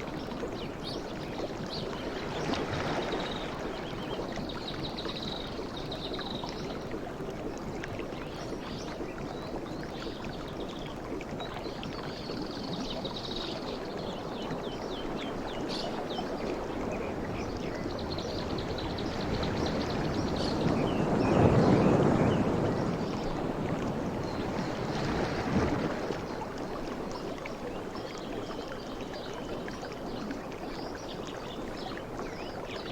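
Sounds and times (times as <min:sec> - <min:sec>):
sea waves washing onto shore: 0:02.0 - 0:04.0, 0:16.5 - 0:27.6.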